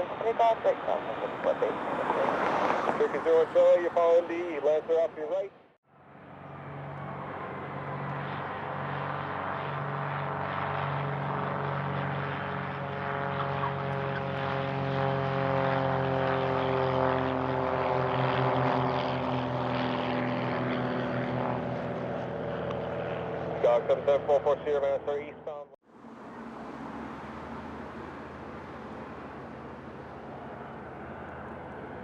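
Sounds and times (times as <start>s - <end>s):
propeller plane engine running: 0.0s - 32.0s.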